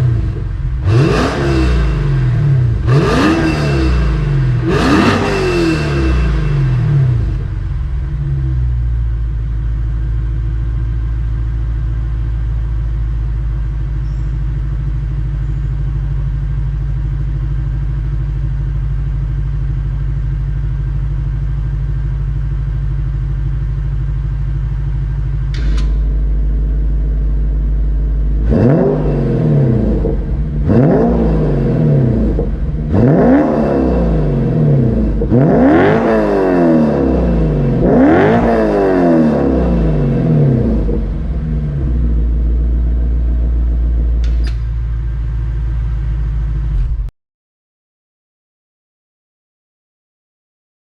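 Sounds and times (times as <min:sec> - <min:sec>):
car engine revving and idling: 0:00.0 - 0:47.1
click: 0:25.5 - 0:26.1, 0:44.2 - 0:44.7.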